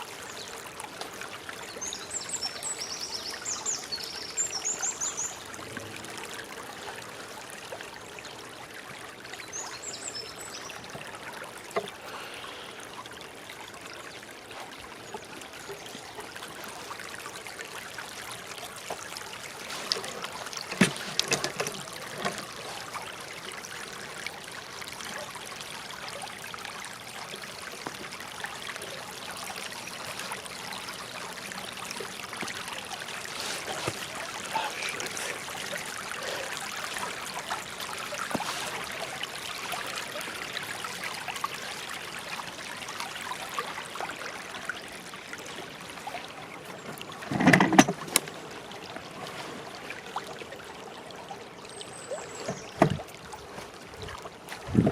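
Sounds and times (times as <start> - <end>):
water flowing: 0.0 - 54.9.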